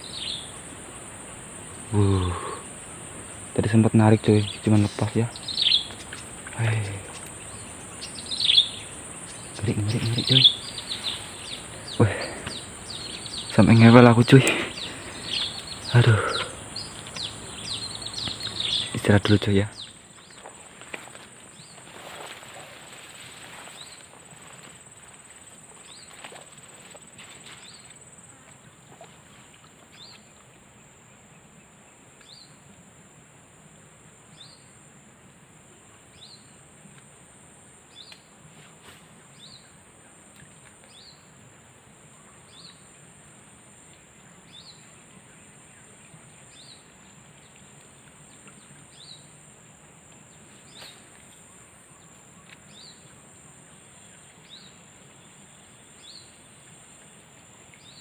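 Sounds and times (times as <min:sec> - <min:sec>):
high-pitched insect drone: 0:00.0 - 0:20.0
faint background hiss: 0:00.0 - 0:58.0.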